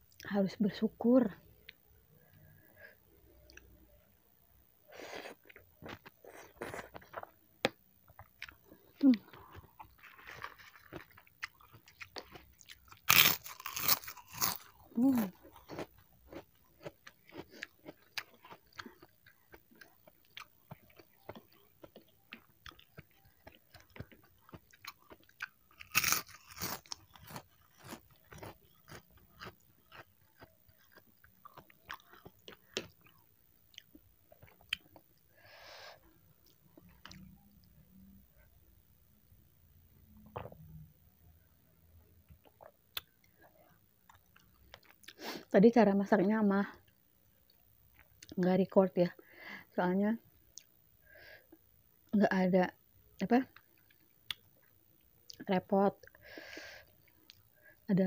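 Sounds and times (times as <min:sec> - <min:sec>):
person chewing noodles: 0:08.1 - 0:35.3, 0:44.1 - 0:45.3.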